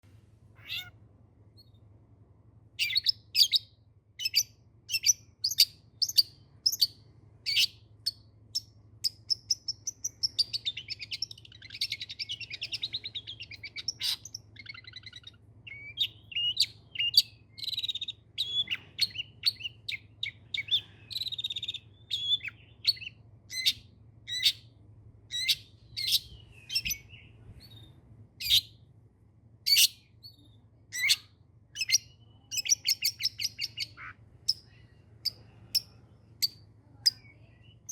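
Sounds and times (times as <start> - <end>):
shrike singing sharp calls: 0.6 - 0.9.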